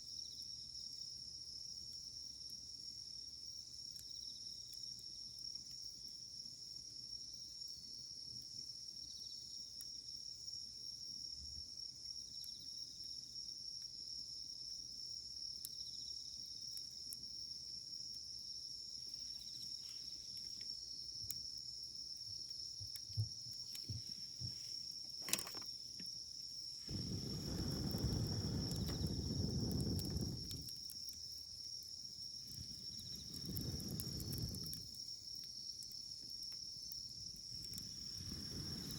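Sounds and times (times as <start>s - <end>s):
campfire crackling and popping: 25.0s - 26.2s, 26.8s - 38.9s
low rushing noise: 26.9s - 30.6s.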